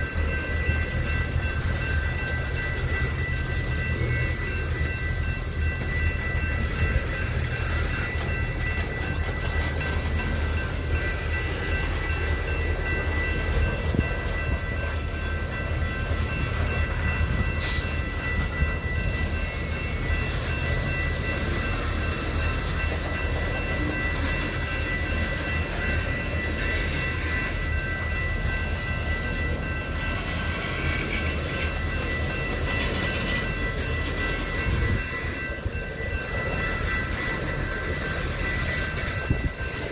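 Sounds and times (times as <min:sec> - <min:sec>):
train rumbling past: 0:00.0 - 0:39.9.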